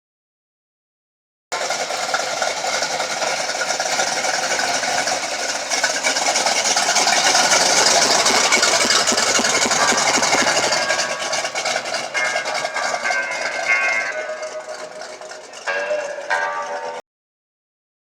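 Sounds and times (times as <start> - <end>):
vehicle engine running: 1.5 - 17.0.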